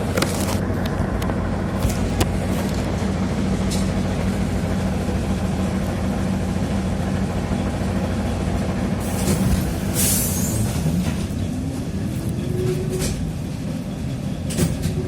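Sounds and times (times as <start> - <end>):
constant hum: 0.0 - 15.0
trolleybus motor drone: 0.0 - 15.0
hiss: 9.0 - 11.0.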